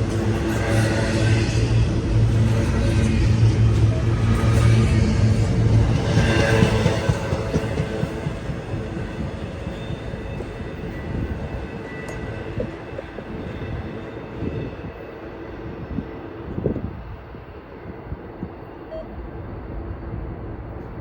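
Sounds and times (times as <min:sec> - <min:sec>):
freight train rumbling past: 0:00.0 - 0:21.0
train cars clanking: 0:03.6 - 0:15.8.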